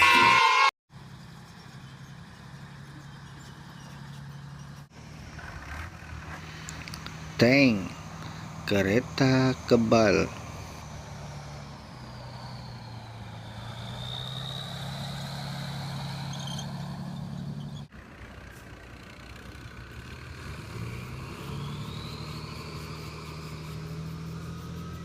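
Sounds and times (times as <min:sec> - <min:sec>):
high whine: 0:00.0 - 0:00.7
tank engine running: 0:00.9 - 0:25.0.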